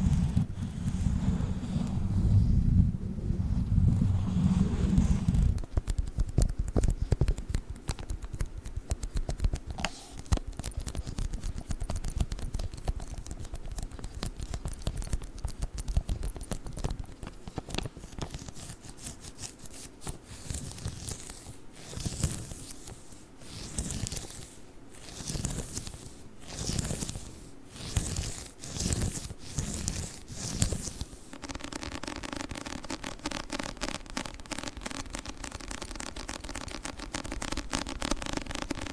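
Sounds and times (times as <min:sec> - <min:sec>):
lint roller tape crackling: 0:10.2 - 0:38.9.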